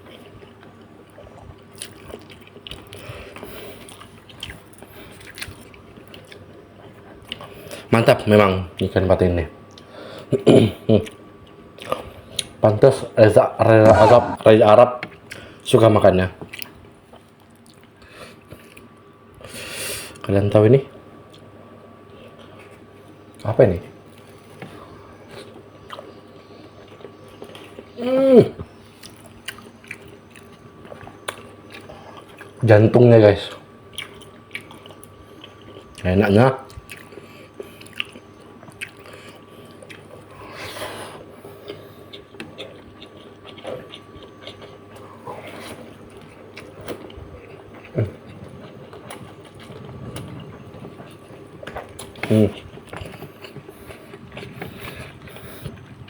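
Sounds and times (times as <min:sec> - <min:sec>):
person chewing with lip smacks: 0:00.1 - 0:07.5, 0:29.0 - 0:32.6, 0:33.5 - 0:36.0, 0:36.6 - 0:40.3, 0:41.5 - 0:56.0
person humming: 0:13.8 - 0:14.4.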